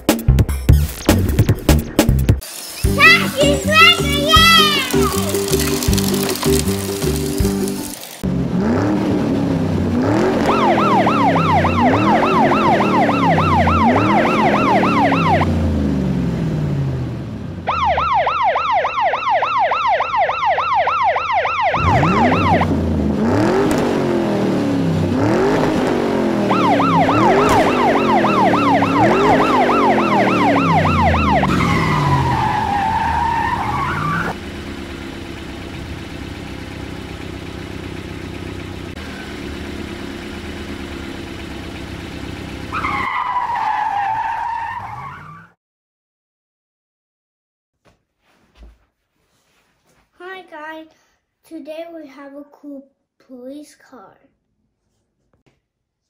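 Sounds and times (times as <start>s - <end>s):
engine humming: 1.0s - 21.0s, 21.6s - 43.1s
engine revving: 8.2s - 18.5s, 21.6s - 43.1s
police siren: 10.1s - 15.8s, 17.6s - 22.8s, 26.3s - 34.4s.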